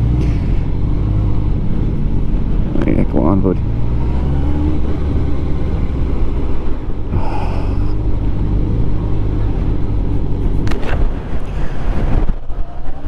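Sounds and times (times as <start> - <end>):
motorcycle engine running: 0.0 - 12.0
wind rush on microphone: 4.7 - 13.0.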